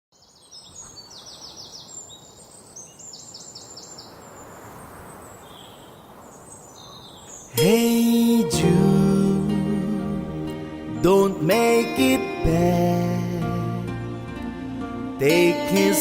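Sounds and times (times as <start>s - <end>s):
birds singing: 0.1s - 8.5s
music with sliding note: 7.6s - 16.0s.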